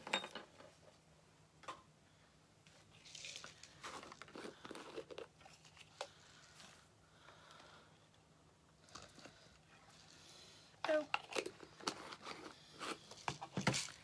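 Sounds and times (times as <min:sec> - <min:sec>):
material crinkling and rustling: 0:02.7 - 0:06.9.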